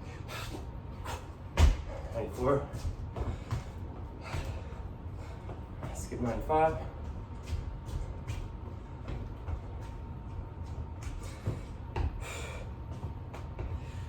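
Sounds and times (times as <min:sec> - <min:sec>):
heavy breathing: 0:00.0 - 0:02.3, 0:03.1 - 0:06.0, 0:11.1 - 0:14.0.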